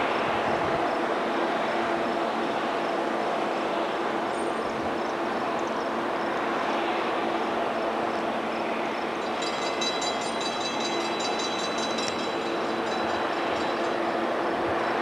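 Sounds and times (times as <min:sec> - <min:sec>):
diesel locomotive rumbling: 0:00.0 - 0:15.0
rhythmic high metallic ringing: 0:09.2 - 0:15.0.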